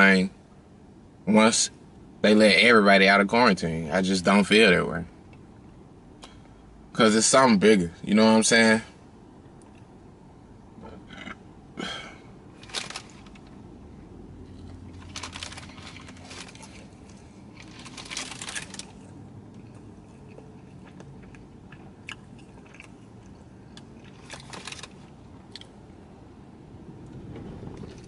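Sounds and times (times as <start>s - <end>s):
person chewing burger: 14.4s - 25.8s.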